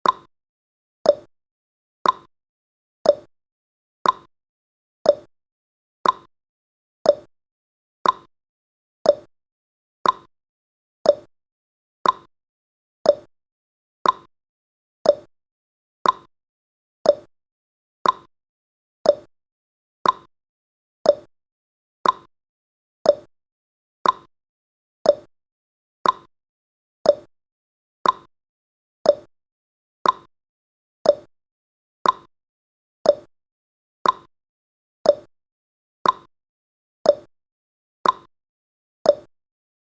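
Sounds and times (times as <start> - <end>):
clock ticking: 2.0 - 2.3, 4.0 - 4.3, 6.0 - 6.3, 8.0 - 8.3, 10.0 - 10.3, 12.0 - 12.3, 14.0 - 14.3, 15.1 - 15.3, 16.0 - 16.3, 18.0 - 18.3, 20.0 - 20.3, 21.1 - 21.3, 22.0 - 22.3, 24.0 - 24.3, 26.0 - 26.3, 28.0 - 28.3, 29.1 - 29.3, 30.0 - 30.3, 31.1 - 31.3, 32.0 - 32.3, 33.1 - 33.3, 34.0 - 34.3, 35.1 - 35.3, 36.0 - 36.3, 38.0 - 38.3, 39.1 - 39.3.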